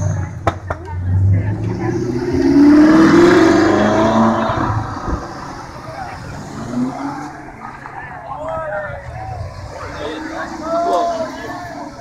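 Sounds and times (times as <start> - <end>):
sports car engine accelerating: 0.0 - 8.1
second car engine: 0.0 - 12.0.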